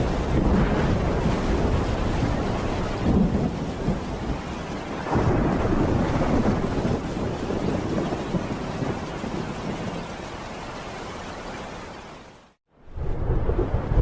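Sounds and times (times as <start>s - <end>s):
thunder rumbling: 0.0s - 10.4s, 12.8s - 14.0s
steady rain: 0.0s - 14.0s.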